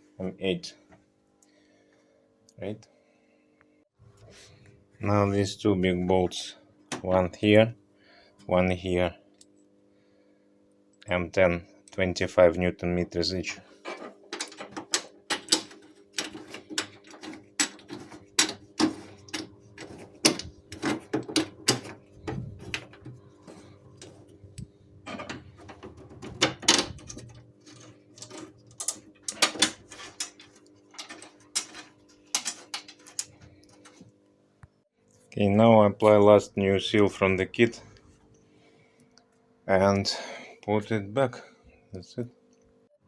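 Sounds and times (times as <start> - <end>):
steady hum: 2.6 - 42.4.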